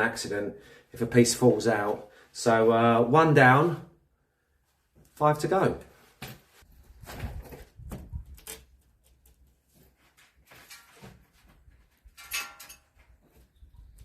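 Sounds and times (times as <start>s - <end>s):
clicks of glass and tools: 12.2s - 13.0s.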